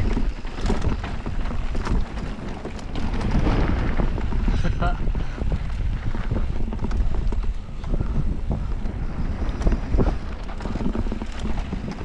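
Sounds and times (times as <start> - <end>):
bike knocks and rattles: 0.0 - 12.0
wind buffeting microphone: 0.0 - 12.0.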